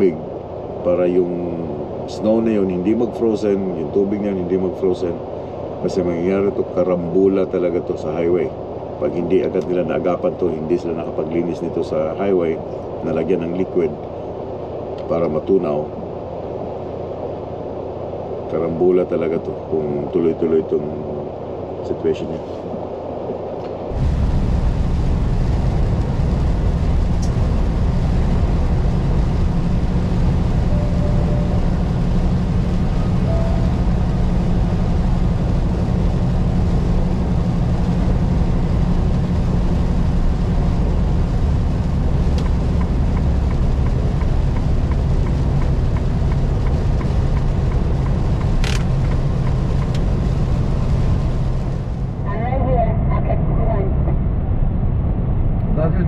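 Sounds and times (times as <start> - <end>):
truck diesel engine drone: 0.0 - 56.0
tyres hissing on wet road: 23.9 - 52.2.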